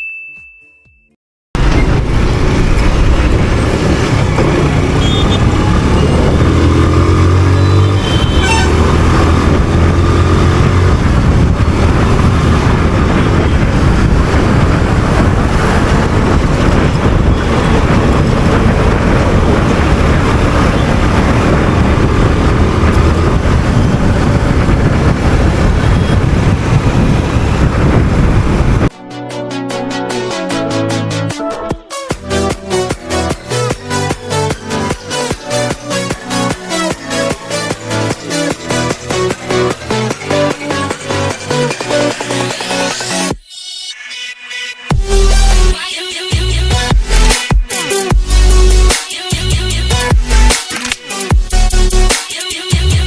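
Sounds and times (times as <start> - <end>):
wind and road noise: 1.6 - 29.0, 32.2 - 43.4, 46.4 - 53.0
motorcycle engine running: 1.9 - 28.9.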